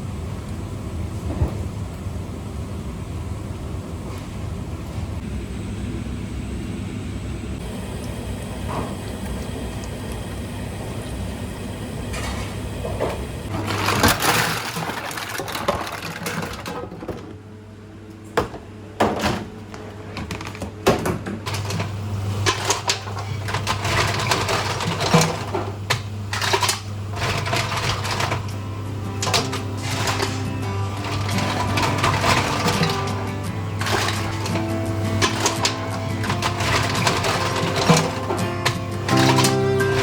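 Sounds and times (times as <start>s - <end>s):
steady low hum: 0.0s - 40.0s
utensils and containers clattering: 12.1s - 17.4s, 18.4s - 40.0s.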